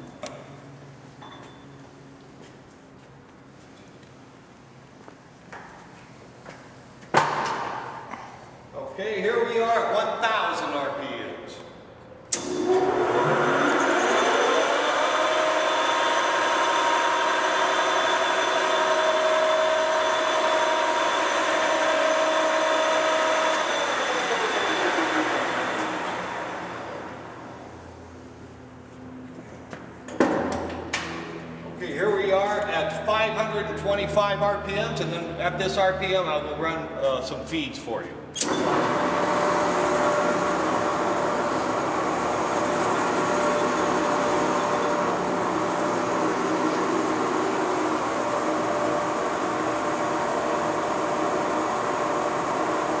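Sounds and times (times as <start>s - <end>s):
lathe running with steady whine: 12.3s - 28.5s, 38.4s - 53.0s.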